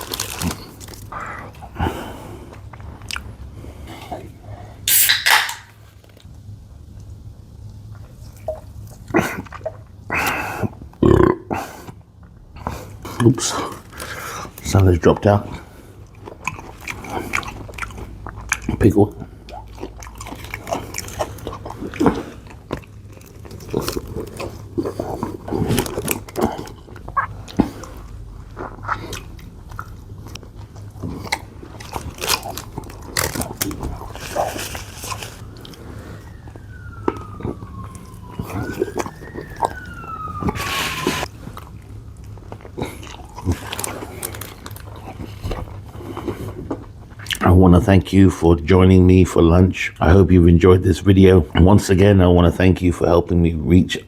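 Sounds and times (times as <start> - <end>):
chewing and crunching food: 0.0 - 4.4, 6.9 - 47.6
siren wailing: 35.2 - 41.4.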